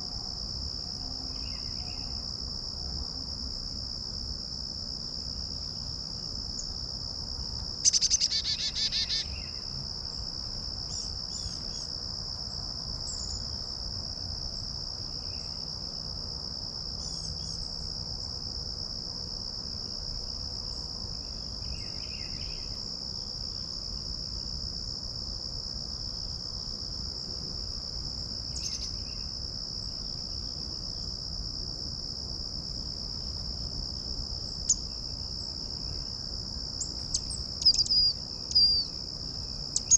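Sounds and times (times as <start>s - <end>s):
high-pitched insect chorus: 0.0s - 39.9s
faint bird chirps: 7.8s - 9.6s, 37.1s - 38.9s.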